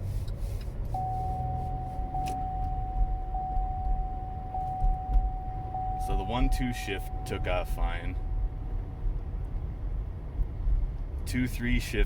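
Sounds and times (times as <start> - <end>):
car engine rumble: 0.0 - 12.0
road noise: 0.0 - 12.0
high electronic tone: 1.0 - 8.7.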